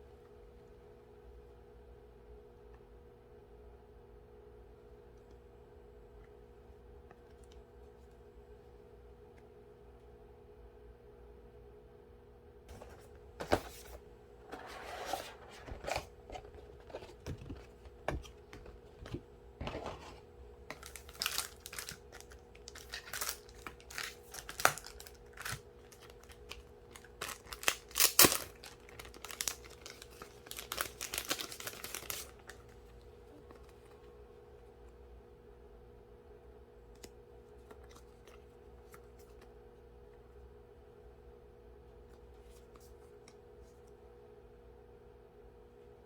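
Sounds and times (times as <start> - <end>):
packaging crinkling and tearing: 20.7 - 32.7.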